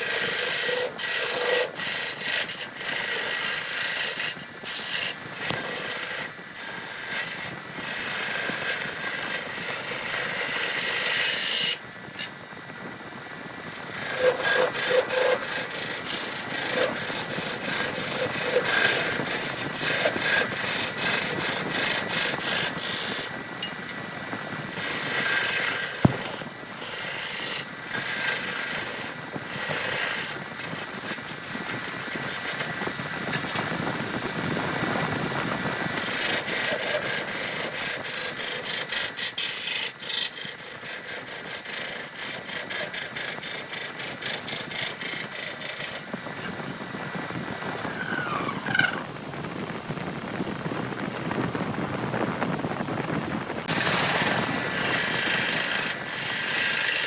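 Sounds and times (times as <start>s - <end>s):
sanding wood by hand: 13.8s - 23.3s, 24.7s - 32.8s, 36.0s - 46.1s, 53.7s - 57.0s.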